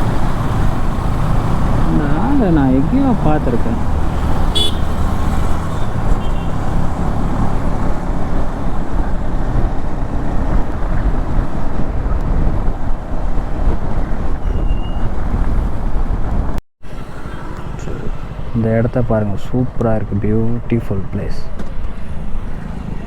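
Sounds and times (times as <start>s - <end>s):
motorcycle engine running: 0.0s - 11.6s
road and wind noise: 0.0s - 23.0s.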